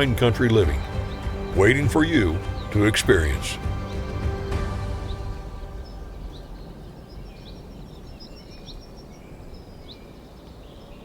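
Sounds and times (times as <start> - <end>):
background music: 0.0 - 7.3
small bird chirping: 3.6 - 11.0.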